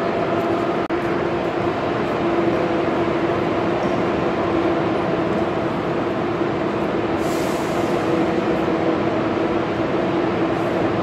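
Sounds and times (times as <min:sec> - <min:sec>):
electric hum of trains: 0:00.0 - 0:11.0
air hiss: 0:07.1 - 0:08.3.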